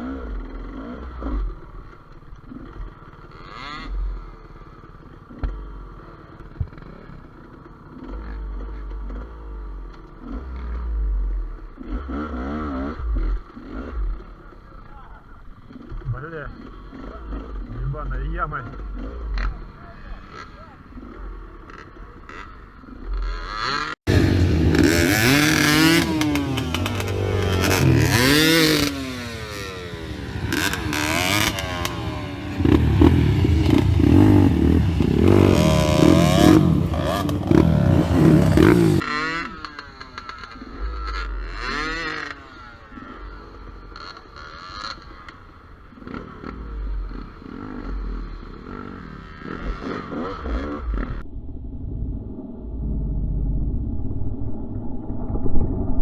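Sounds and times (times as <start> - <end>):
two-stroke motorcycle revving: 0.0 - 51.2.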